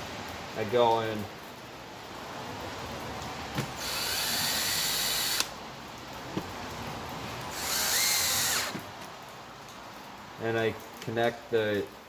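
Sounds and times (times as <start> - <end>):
power drill whining: 3.8 - 5.5, 7.5 - 8.8.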